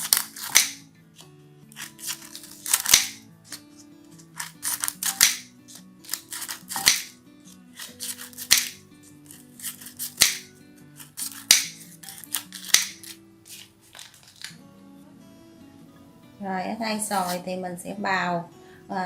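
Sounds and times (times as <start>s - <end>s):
scissors cutting paper: 0.0s - 0.8s, 1.7s - 14.6s, 17.1s - 17.4s
background music: 0.0s - 19.0s.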